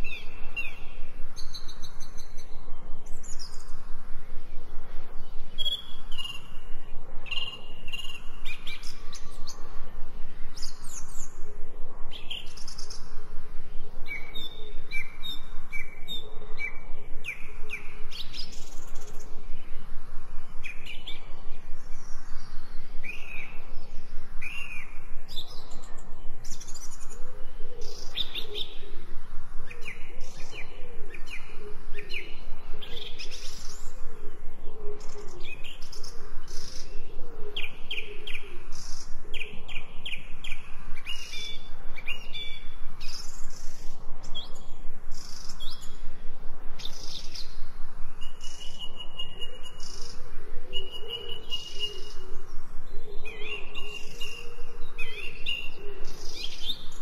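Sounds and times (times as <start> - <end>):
birds chirping and tweeting: 0.0 - 57.0
low warbling bird call: 46.8 - 57.0.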